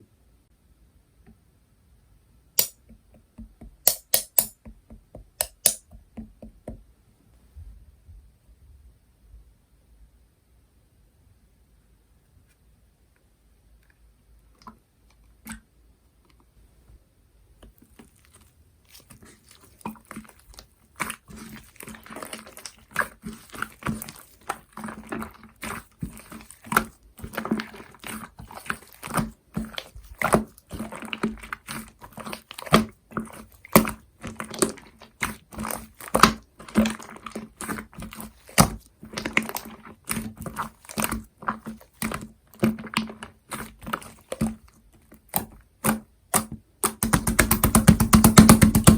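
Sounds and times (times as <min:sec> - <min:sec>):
slime squelching and clicking: 0:02.6 - 0:06.4, 0:17.6 - 0:48.9.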